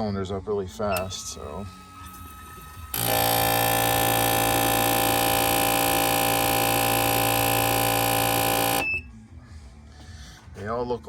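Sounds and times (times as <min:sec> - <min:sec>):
fuel injectors buzzing: 0:01.0 - 0:01.4, 0:02.0 - 0:09.0.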